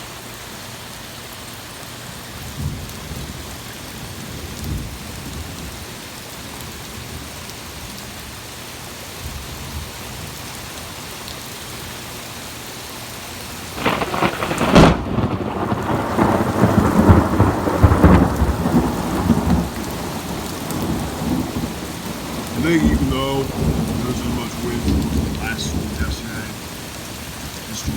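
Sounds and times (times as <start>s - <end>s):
heavy rain falling: 0.0s - 27.9s
thunder crack and rumble: 13.8s - 27.9s.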